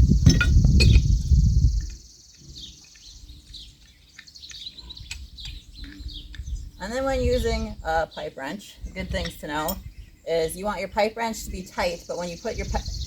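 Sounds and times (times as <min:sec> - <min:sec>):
high insect buzz: 0:00.0 - 0:03.2
birds chirping: 0:00.0 - 0:13.0.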